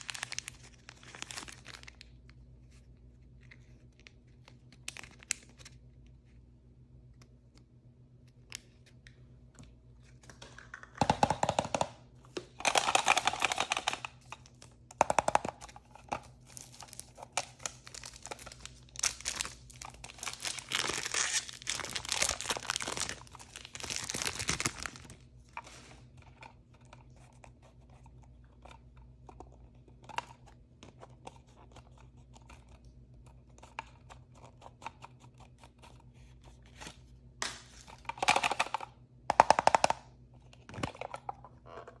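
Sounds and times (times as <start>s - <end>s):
packaging tearing and crinkling: 0.0s - 2.1s, 16.5s - 25.8s.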